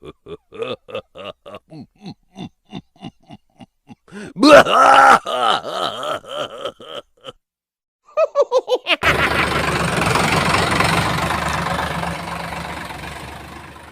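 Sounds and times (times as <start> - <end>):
engine cranking and starting: 9.0 - 13.9.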